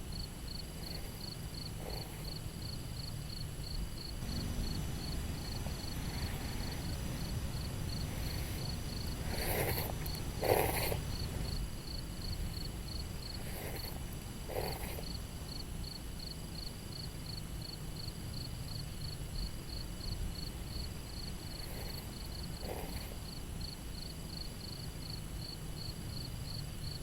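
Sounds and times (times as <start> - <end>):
low steady rumble: 0.0 - 24.3
insect chirping: 0.0 - 27.0.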